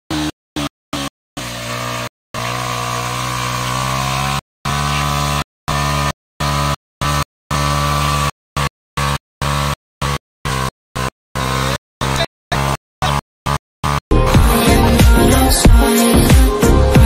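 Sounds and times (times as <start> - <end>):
motorcycle engine revving: 0.1 - 17.0
tyre spinning: 13.5 - 15.0.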